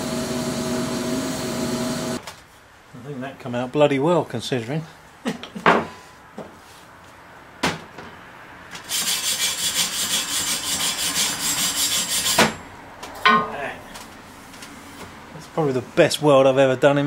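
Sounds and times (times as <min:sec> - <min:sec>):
scraping on steel: 0:08.8 - 0:12.6.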